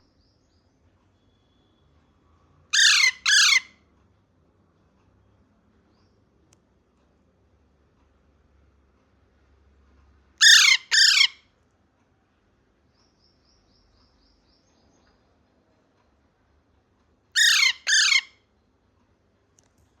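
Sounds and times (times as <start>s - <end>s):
parrot calls falling in pitch: 2.8s - 3.7s, 10.4s - 11.4s, 17.4s - 18.3s.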